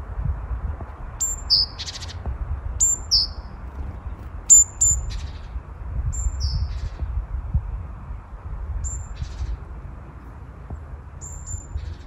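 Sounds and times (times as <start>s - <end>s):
low rumble: 0.0s - 12.0s
small birds calling: 0.9s - 7.2s, 8.8s - 9.7s, 11.2s - 12.0s.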